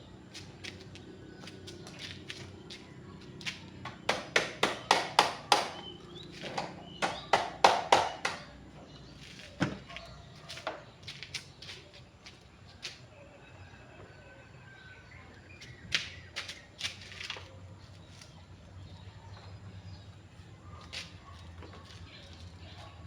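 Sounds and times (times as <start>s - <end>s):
sharp taps: 3.8s - 8.5s.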